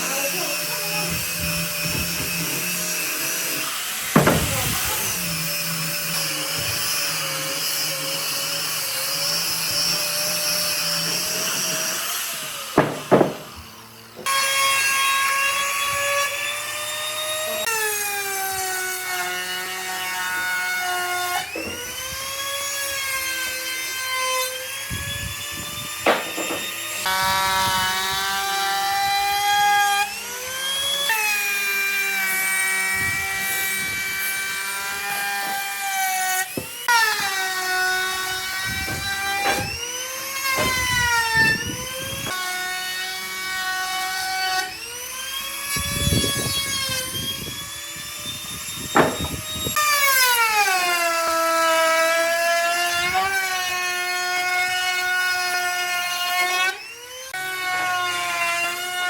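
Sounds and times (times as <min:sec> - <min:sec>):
power tool whining through wood: 0:00.0 - 0:59.0
sharp knocks: 0:04.1 - 0:04.8, 0:12.7 - 0:14.3, 0:26.0 - 0:26.7, 0:48.9 - 0:49.4.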